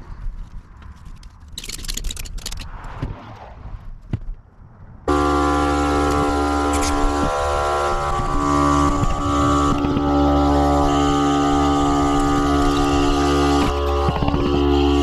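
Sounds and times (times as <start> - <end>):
air compressor motor drone: 5.1 - 15.0.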